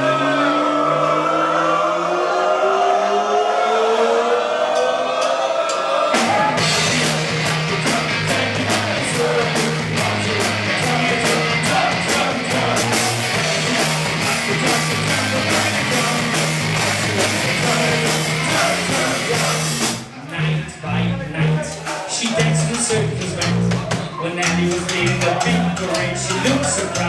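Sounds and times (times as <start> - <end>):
punk rock band playing: 5.9 - 20.2, 21.4 - 27.0.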